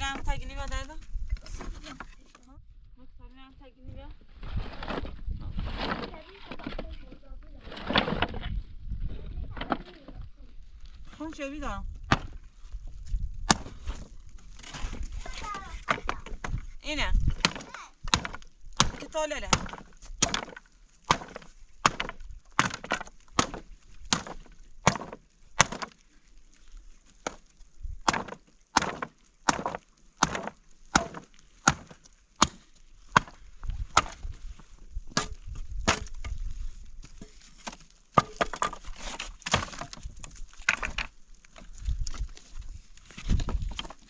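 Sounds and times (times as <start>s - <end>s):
axe chopping wood: 12.1s - 12.4s, 13.4s - 14.0s, 15.8s - 16.6s, 17.2s - 26.0s, 27.2s - 34.4s, 35.1s - 36.4s, 37.1s - 41.1s.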